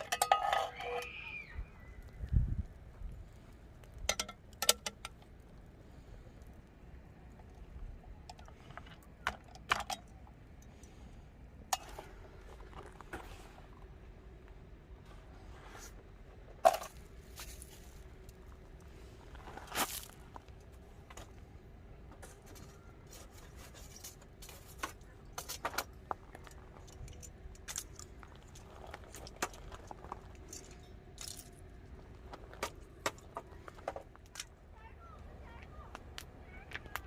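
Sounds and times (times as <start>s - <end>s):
objects clicking and clinking: 0.0s - 1.2s, 22.2s - 34.6s
objects scraping: 0.0s - 1.2s, 22.1s - 31.6s.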